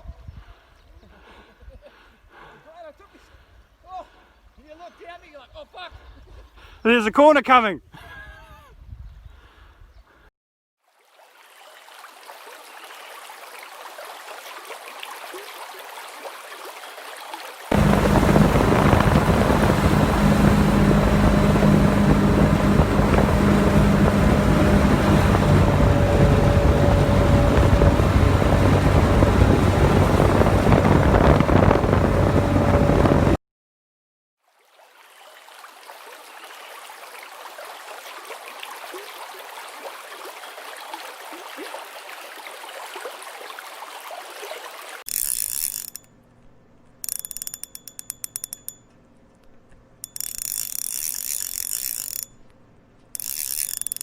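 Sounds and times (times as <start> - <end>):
loud rushing noise with hum: 17.7 - 33.4
fishing reel ratchet clicking: 45.1 - 46.1, 47.0 - 49.0, 50.0 - 52.5, 53.1 - 54.0.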